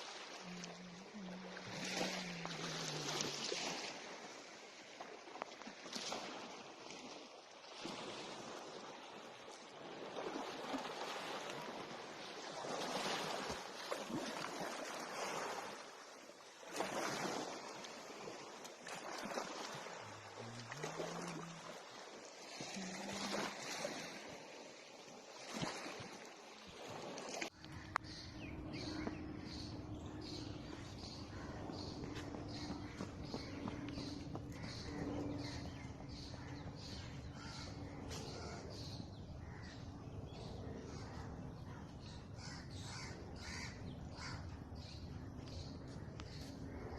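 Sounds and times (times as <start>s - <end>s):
rushing water: 0.0s - 38.9s
steady low hum: 27.6s - 42.3s.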